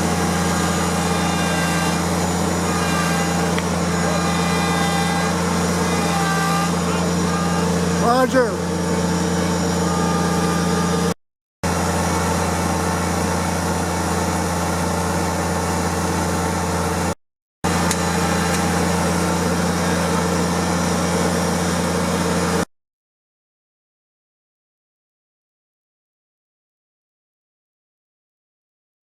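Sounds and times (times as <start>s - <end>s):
tractor engine running: 0.0s - 22.6s.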